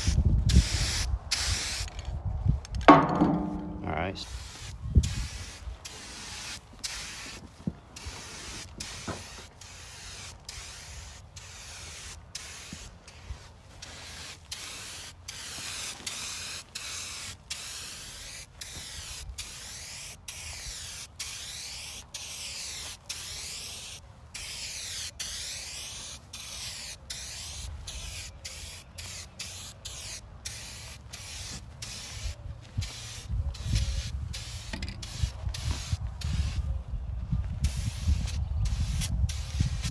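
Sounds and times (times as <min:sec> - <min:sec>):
aerosol spray paint hissing: 0:00.0 - 0:01.9, 0:03.3 - 0:36.7, 0:37.6 - 0:39.9.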